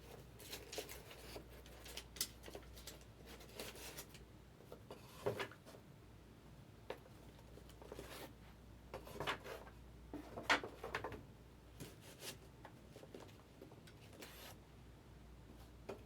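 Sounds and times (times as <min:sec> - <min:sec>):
cards and wrappers rustling: 0:00.1 - 0:04.2.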